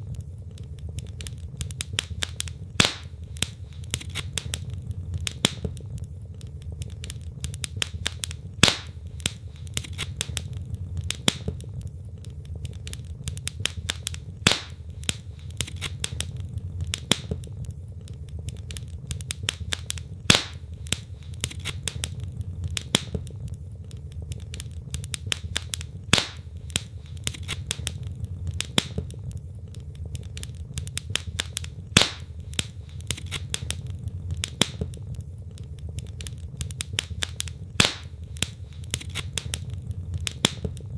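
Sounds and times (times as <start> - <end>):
low fire rumble: 0.0 - 40.9
wood fire crackling: 0.0 - 40.9
sharp log snap: 2.8 - 3.1, 8.6 - 9.0, 14.4 - 14.8, 20.3 - 20.6, 26.1 - 26.4, 32.0 - 32.3, 37.8 - 39.2.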